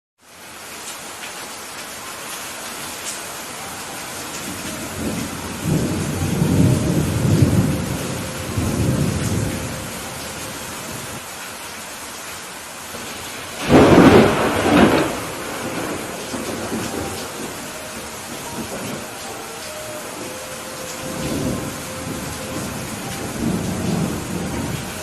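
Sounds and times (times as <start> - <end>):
rain falling: 0.2 - 25.0
thunder rumbling: 4.5 - 11.2, 13.0 - 25.0
thunder clap: 13.5 - 19.1.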